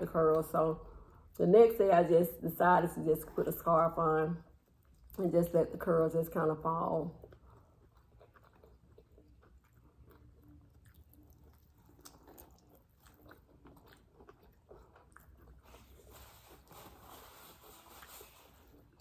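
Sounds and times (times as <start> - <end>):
faint chewing and biting food: 4.4 - 19.0.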